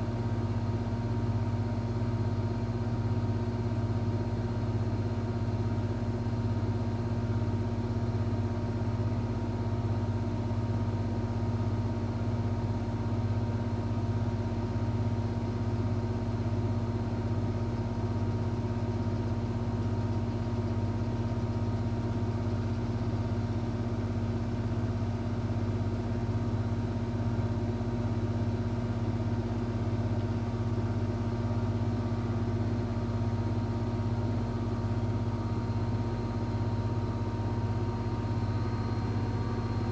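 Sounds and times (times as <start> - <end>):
washing machine motor hum: 29.0 - 39.9.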